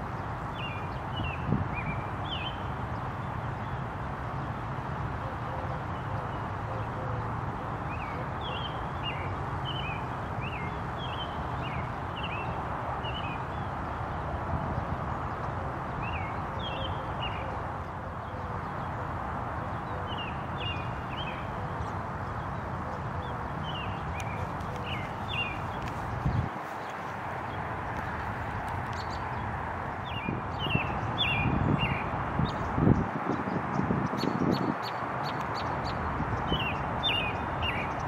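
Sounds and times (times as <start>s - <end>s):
outdoor background noise: 0.0s - 38.0s
small birds chirping: 19.6s - 38.0s.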